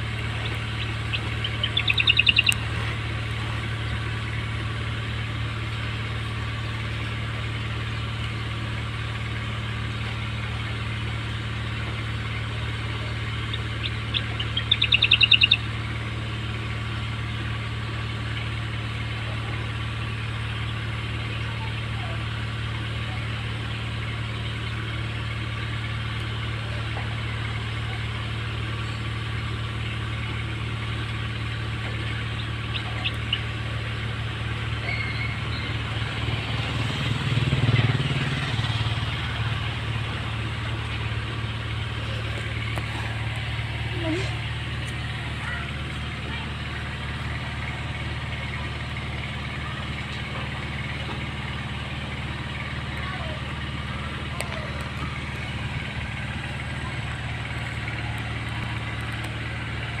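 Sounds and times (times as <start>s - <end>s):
steady low hum: 0.0s - 60.0s
bird chirping calls: 0.2s - 2.7s, 12.9s - 15.8s, 32.0s - 33.6s, 34.8s - 35.9s.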